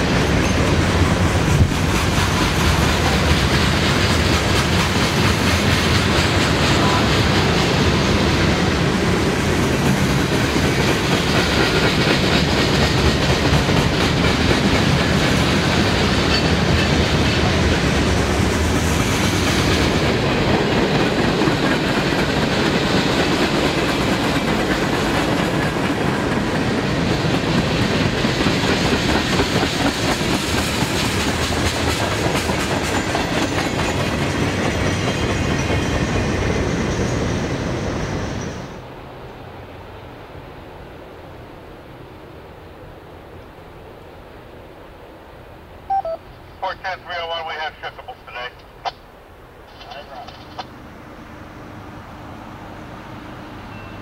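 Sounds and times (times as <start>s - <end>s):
clickety-clack over rail joints: 0.0s - 37.7s, 49.7s - 50.8s
freight train wheels rumbling: 0.0s - 45.4s, 46.5s - 54.0s.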